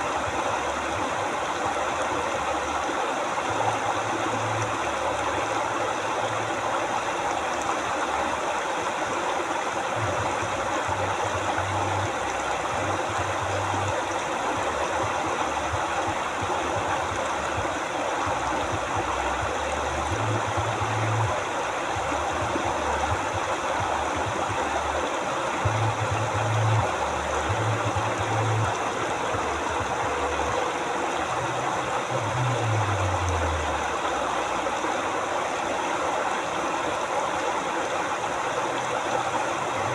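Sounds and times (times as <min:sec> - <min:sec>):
river water rushing and babbling: 0:00.0 - 0:39.9.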